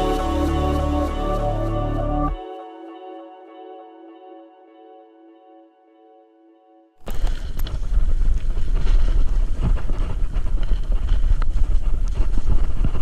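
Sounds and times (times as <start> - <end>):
quiet held music notes: 0.0 - 4.1
wind buffeting microphone: 7.1 - 13.0.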